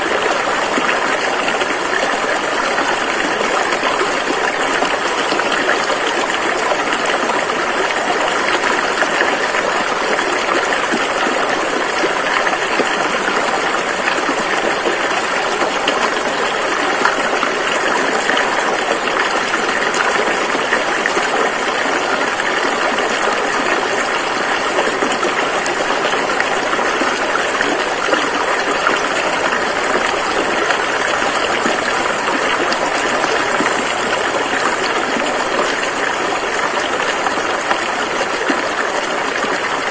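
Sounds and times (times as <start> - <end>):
rushing river water: 0.0 - 39.9.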